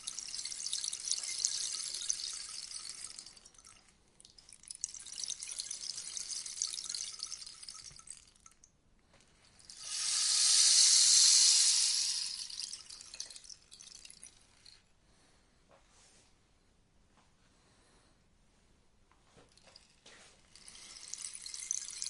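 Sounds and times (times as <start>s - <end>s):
rainstick beads trickling: 0.0s - 8.6s, 9.5s - 14.8s, 19.6s - 22.0s.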